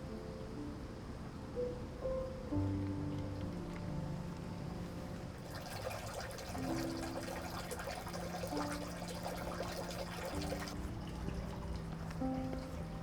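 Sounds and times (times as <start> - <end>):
soft music of held notes: 0.0 - 13.0
water trickling and splashing: 5.2 - 13.0.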